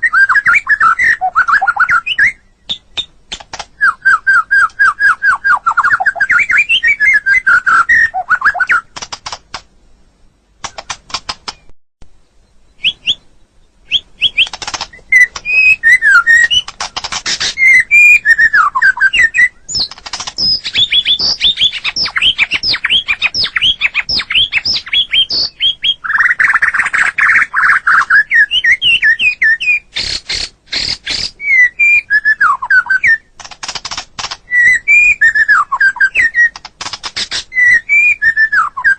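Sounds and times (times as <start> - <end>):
bird singing whistled phrases: 0.0 - 3.1, 3.8 - 8.9, 12.4 - 16.7, 17.3 - 33.3, 34.5 - 36.6, 37.3 - 38.9
bird chattering notes: 13.9 - 28.1.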